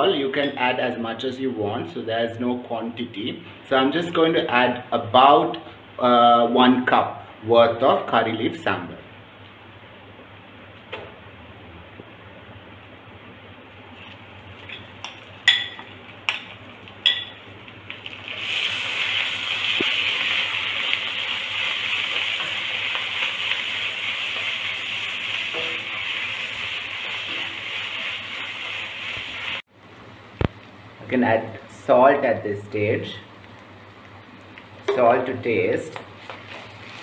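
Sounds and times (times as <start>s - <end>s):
loud sizzle of frying: 13.9s - 31.8s, 32.9s - 34.9s, 35.5s - 37.0s.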